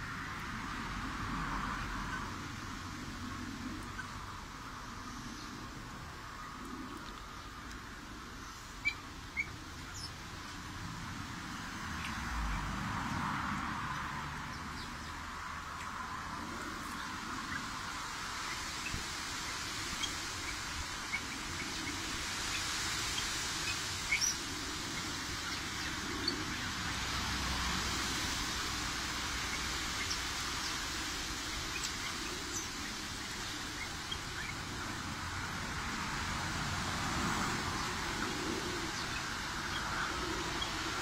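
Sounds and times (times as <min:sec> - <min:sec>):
steady background hiss: 0:00.0 - 0:41.0.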